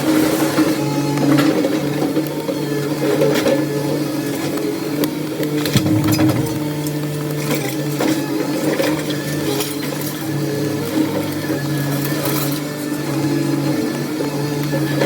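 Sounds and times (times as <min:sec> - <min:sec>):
knocks and clatter: 0:05.6 - 0:07.1
machine humming: 0:05.6 - 0:07.4.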